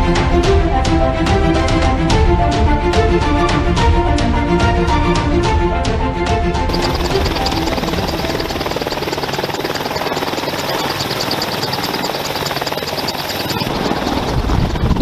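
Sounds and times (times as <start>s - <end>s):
helicopter turbine whine: 4.9s - 15.0s
helicopter rotor beating: 6.6s - 15.0s.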